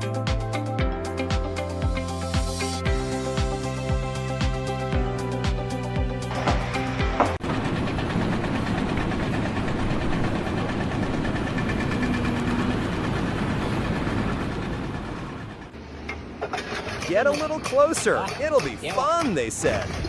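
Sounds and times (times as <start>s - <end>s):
engine running: 0.0s - 17.1s.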